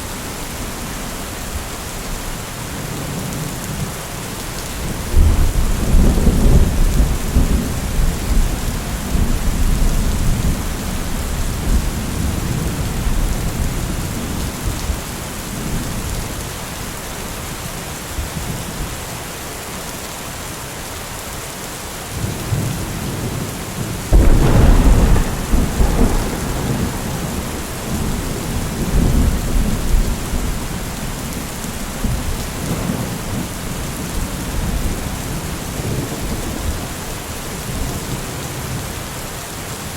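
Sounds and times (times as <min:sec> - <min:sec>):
steady rain: 0:00.0 - 0:39.9
thunderclap: 0:24.1 - 0:31.1
rolling thunder: 0:24.1 - 0:36.8.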